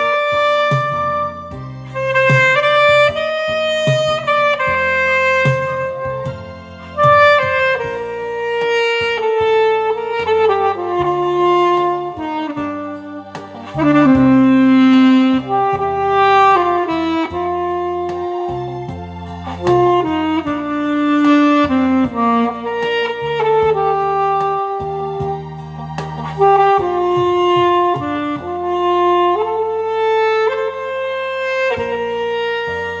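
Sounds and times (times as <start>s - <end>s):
alto saxophone melody: 0.0s - 33.0s
backing track with bass and drums: 0.0s - 33.0s.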